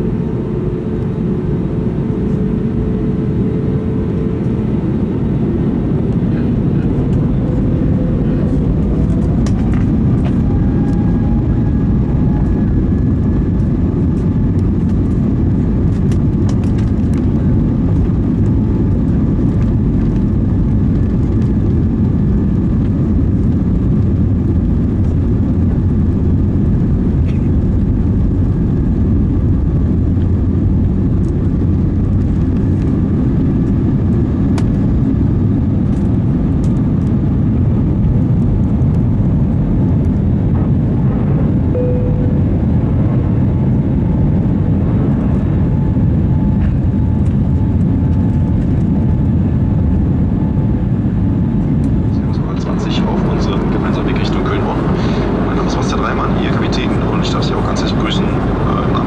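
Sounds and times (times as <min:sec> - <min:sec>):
jet engines and rushing airflow: 0:00.0 - 0:59.0
faint rising whine: 0:40.5 - 0:44.8.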